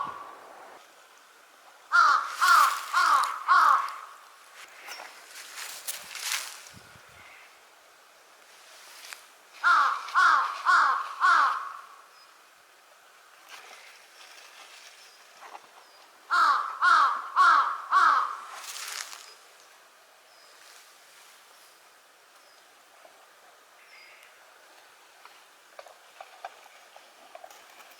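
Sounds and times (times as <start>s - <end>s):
crow cawing: 1.9s - 4.2s, 9.6s - 12.1s, 16.3s - 19.0s.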